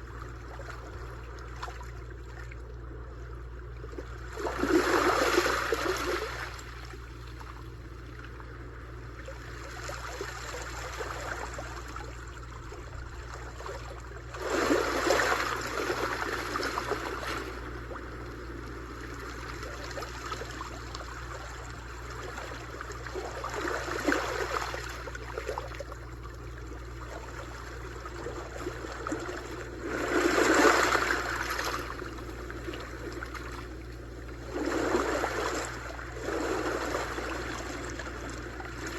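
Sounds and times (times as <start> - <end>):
sea waves crashing: 14.4 - 18.6, 29.6 - 33.8, 34.4 - 38.9
water washing on shore: 28.6 - 38.9.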